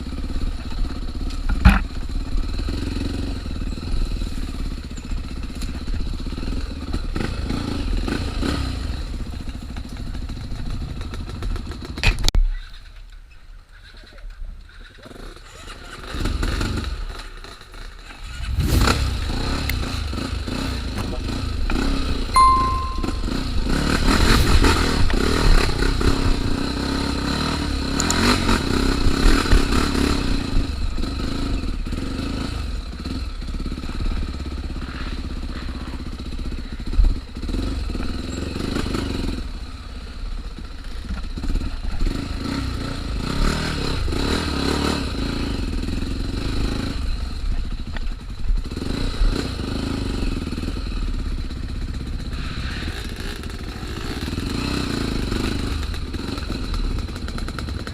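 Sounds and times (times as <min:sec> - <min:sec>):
off-road motorcycle engine: 0:00.0 - 0:57.9
sharp thump: 0:01.5 - 0:01.9.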